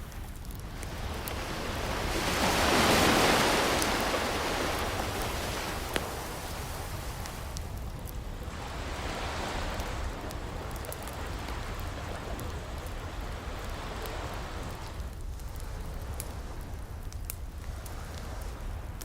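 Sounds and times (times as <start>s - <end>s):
ocean wave washing in: 0.0s - 7.8s
low rumble of surf: 0.0s - 19.0s
wood fire crackling and popping: 0.0s - 19.0s.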